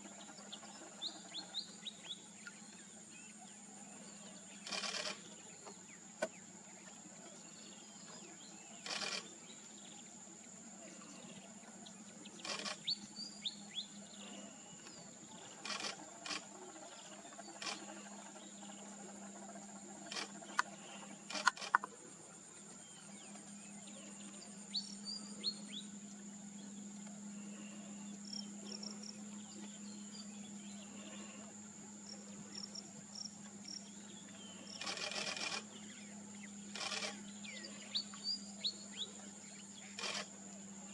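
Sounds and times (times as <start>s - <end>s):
bird chirps: 11.0s - 18.9s, 32.2s - 40.3s.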